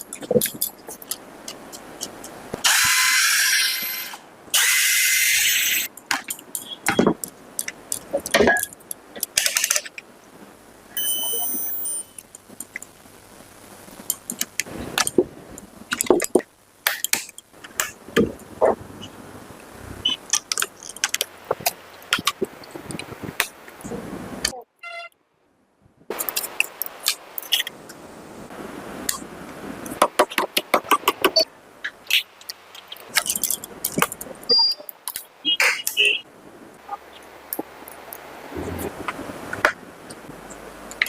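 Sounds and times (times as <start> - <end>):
tools clicking and rattling: 0.0 - 2.3, 33.1 - 34.3
brief steady tones: 11.0 - 12.2.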